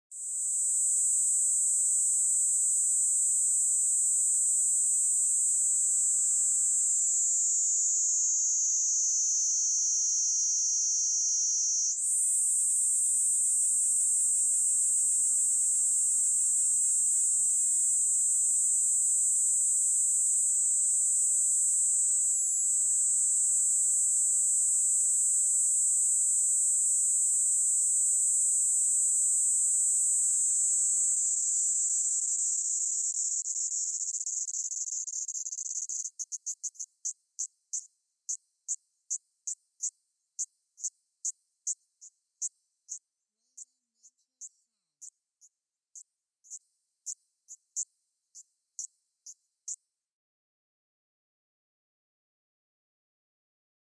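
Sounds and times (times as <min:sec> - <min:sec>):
cicada shrill buzzing: 0:06.8 - 0:14.2, 0:29.1 - 0:36.6.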